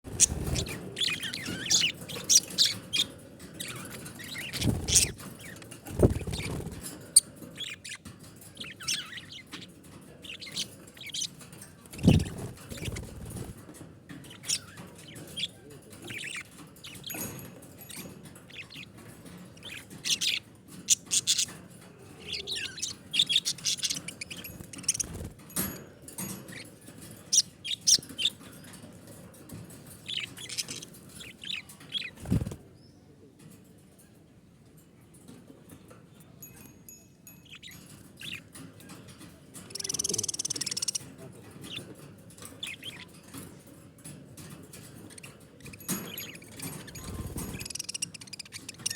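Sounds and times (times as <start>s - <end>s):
budgerigars chirping: 0.1s - 11.4s, 12.0s - 13.5s, 14.2s - 21.6s, 22.2s - 25.3s, 27.3s - 28.5s, 30.0s - 32.4s, 37.4s - 38.5s, 39.7s - 41.9s, 42.5s - 43.2s, 45.1s - 48.9s.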